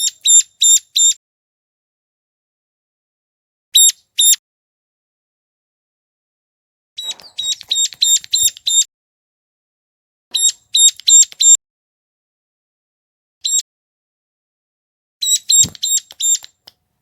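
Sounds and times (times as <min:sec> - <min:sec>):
bird call high repeated notes: 0:00.0 - 0:01.2, 0:03.8 - 0:04.4, 0:07.0 - 0:08.9, 0:10.3 - 0:11.6, 0:13.4 - 0:13.6, 0:15.2 - 0:16.6.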